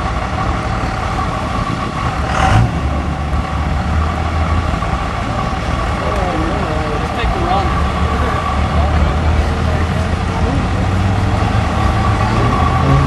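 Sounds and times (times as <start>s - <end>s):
diesel pickup engine running: 0.0s - 13.0s.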